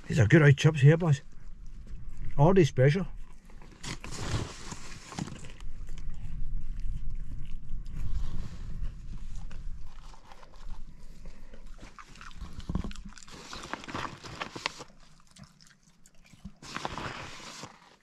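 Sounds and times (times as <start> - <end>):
chips being chewed: 9.2 - 18.0.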